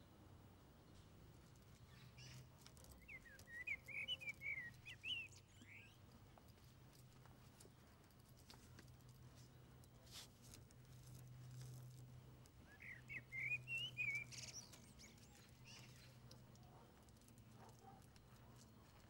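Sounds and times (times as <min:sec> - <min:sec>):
high bird chirps: 0:03.0 - 0:06.0, 0:12.7 - 0:16.2
songbird warbling: 0:12.7 - 0:16.0.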